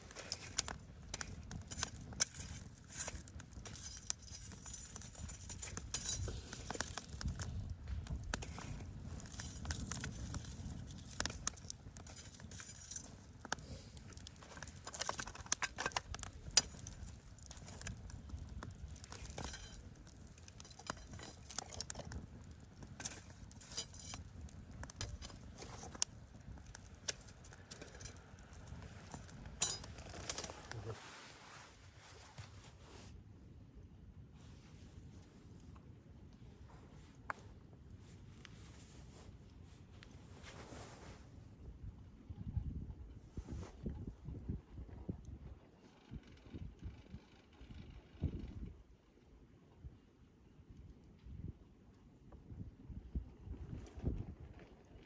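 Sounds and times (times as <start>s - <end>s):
campfire crackling and popping: 0.0s - 31.1s.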